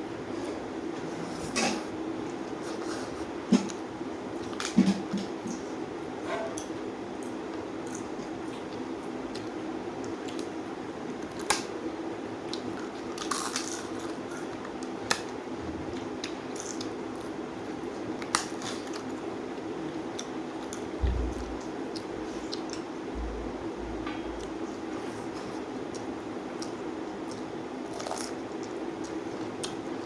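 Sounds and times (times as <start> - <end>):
steady low hum: 18.9 - 30.0
low thumps: 21.0 - 21.6, 23.1 - 24.5
person chewing: 25.3 - 29.8.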